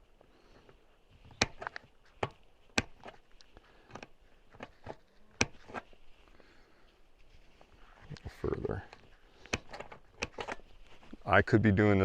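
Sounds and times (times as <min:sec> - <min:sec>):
sharp metallic clicks and taps: 0:01.2 - 0:05.8.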